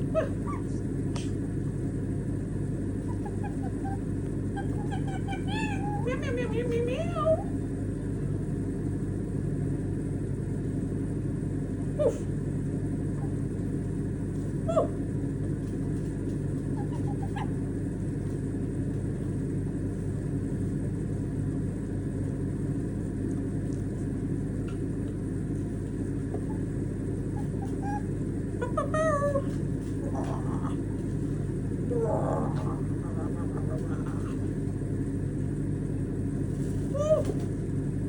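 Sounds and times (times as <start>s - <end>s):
steady low rumble: 0.0s - 38.0s
parrot chirps: 27.4s - 29.4s.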